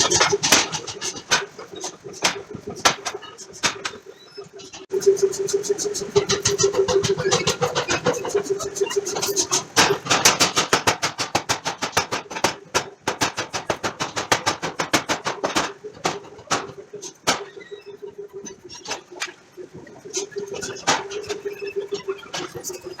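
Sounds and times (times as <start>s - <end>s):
machine hum: 0.0s - 23.0s
hammer striking hot steel: 6.2s - 17.6s.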